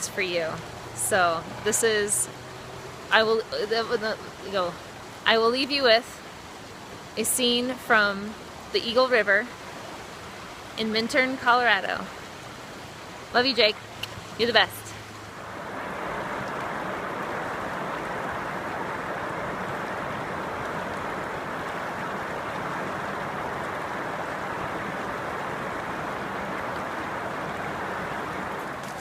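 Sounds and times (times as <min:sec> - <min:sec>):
river rushing: 0:00.0 - 0:29.0.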